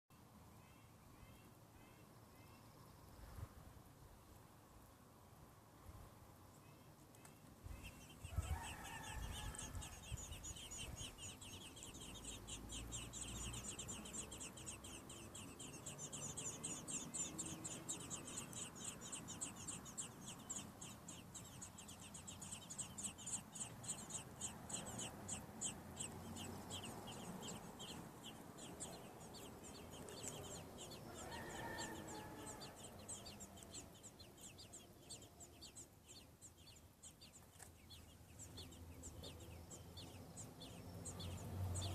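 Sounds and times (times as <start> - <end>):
baby birds peeping: 6.5 - 41.9
lower bird call: 7.2 - 36.8.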